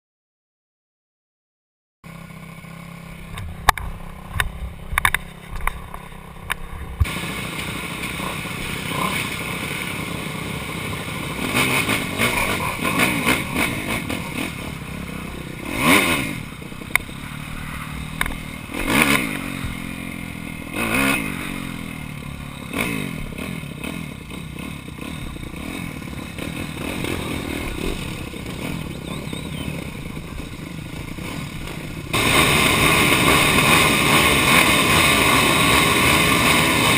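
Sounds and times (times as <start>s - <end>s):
motorbike engine revving: 2.1s - 36.9s
sharp clicks and knocks: 3.3s - 7.1s.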